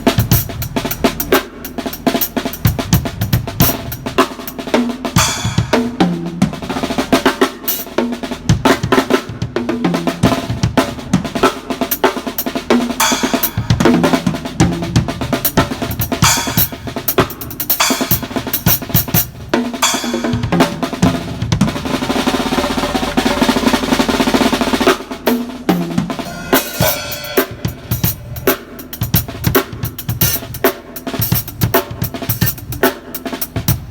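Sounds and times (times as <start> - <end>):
snare drum strokes: 15.4 - 33.9
bass drum hits: 25.9 - 28.5.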